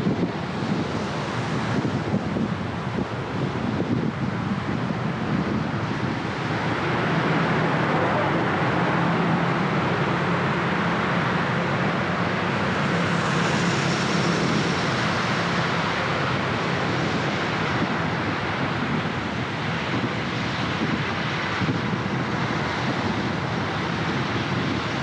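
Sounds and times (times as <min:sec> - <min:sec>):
low engine hum: 0:00.0 - 0:25.0
surrounding traffic: 0:00.0 - 0:25.0.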